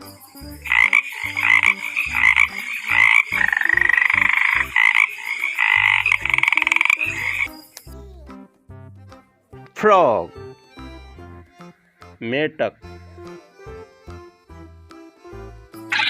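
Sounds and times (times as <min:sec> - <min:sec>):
frogs croaking and trilling: 0:00.3 - 0:07.9, 0:11.4 - 0:12.2.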